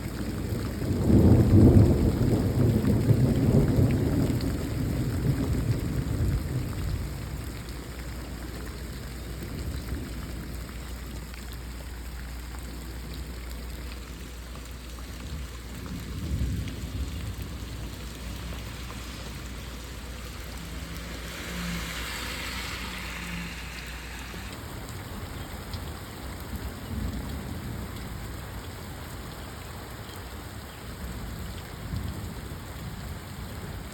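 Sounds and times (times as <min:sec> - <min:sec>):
heavy rain downpour: 0:00.0 - 0:33.9
thunder rolling: 0:15.2 - 0:24.6
loud hiss: 0:21.4 - 0:24.6.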